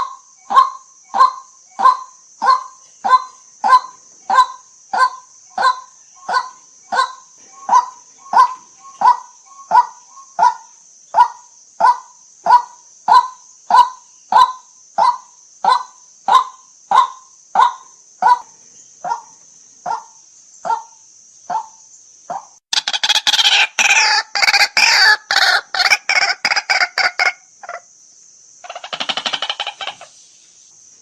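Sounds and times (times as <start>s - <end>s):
waterhen calling: 0.0s - 10.6s, 22.3s - 27.8s, 28.6s - 30.4s
faint high hiss: 27.4s - 31.0s.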